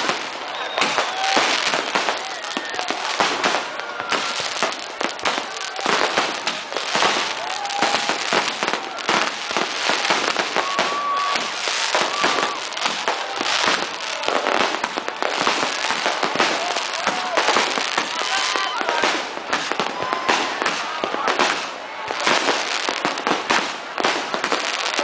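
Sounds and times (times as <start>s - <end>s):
fireworks bangs pops and crackle: 0.0s - 25.0s.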